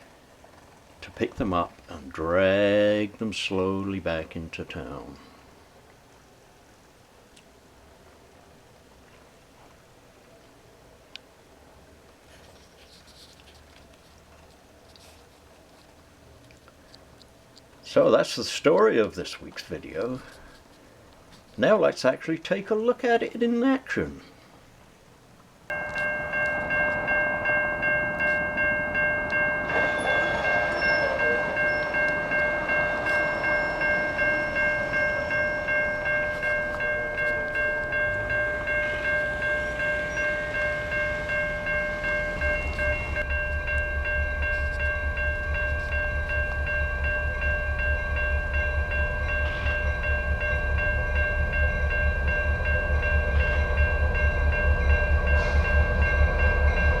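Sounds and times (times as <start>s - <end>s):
train running on track: 25.7s - 57.0s
low rapid throb: 42.4s - 57.0s.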